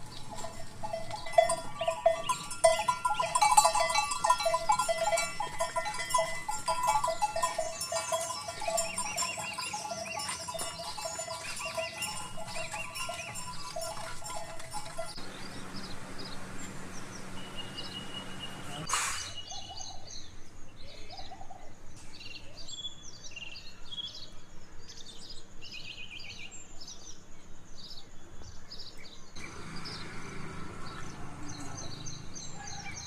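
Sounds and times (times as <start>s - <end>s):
cattle bells clanking: 0.0s - 16.3s
small birds chirping: 0.0s - 33.0s.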